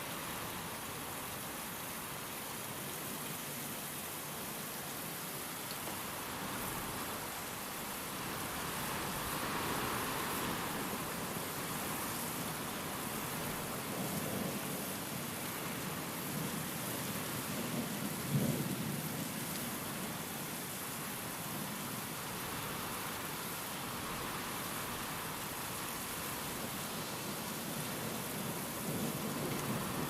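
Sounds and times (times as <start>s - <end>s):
steady rain: 0.0s - 30.0s
wind: 0.0s - 30.0s.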